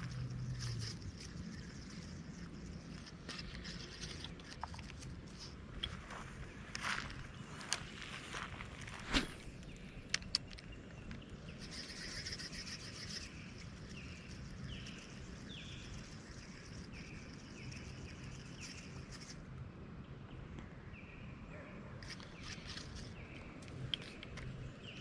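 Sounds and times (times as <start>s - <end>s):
bird chirping: 0.0s - 5.0s, 9.1s - 19.4s
low outdoor background noise: 0.0s - 25.0s.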